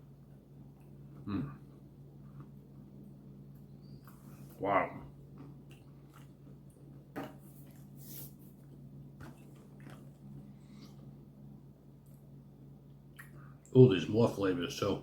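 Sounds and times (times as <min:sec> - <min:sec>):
steady low hum: 0:00.0 - 0:15.0
person murmuring: 0:01.3 - 0:01.6
person chewing crunchy granola bar: 0:09.2 - 0:11.0.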